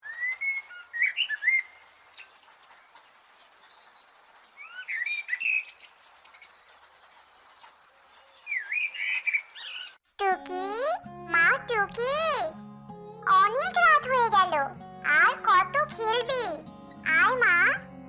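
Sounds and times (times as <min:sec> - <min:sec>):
thin high bird calls: 0:00.0 - 0:10.0
songbirds warbling: 0:00.1 - 0:10.0.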